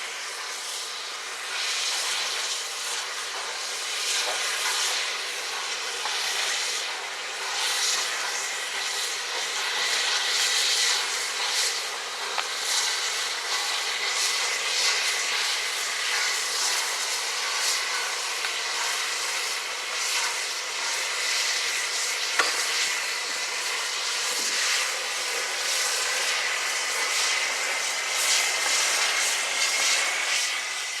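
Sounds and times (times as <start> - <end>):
steam hissing from locomotive: 0.0 - 31.0.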